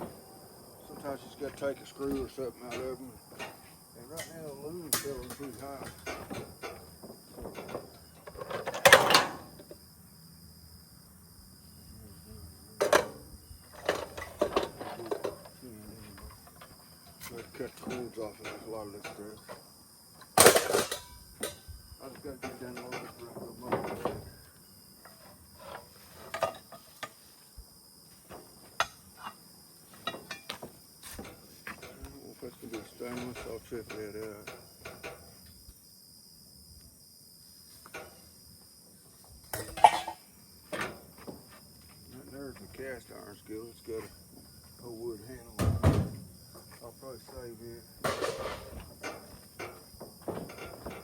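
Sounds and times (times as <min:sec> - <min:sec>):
crickets chirring: 0:00.0 - 0:51.0
scrap metal clinking: 0:00.9 - 0:09.6, 0:12.8 - 0:19.6, 0:20.2 - 0:21.7, 0:22.3 - 0:27.4, 0:28.2 - 0:35.4, 0:39.5 - 0:41.1, 0:48.0 - 0:51.0
metal scrape and clatter: 0:13.7 - 0:15.5, 0:25.1 - 0:27.2, 0:48.0 - 0:51.0.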